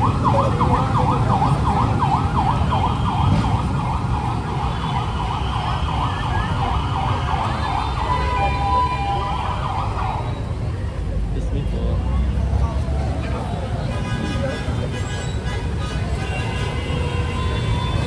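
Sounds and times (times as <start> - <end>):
siren yelping: 0.0 - 10.7
street traffic rumble: 0.0 - 18.0.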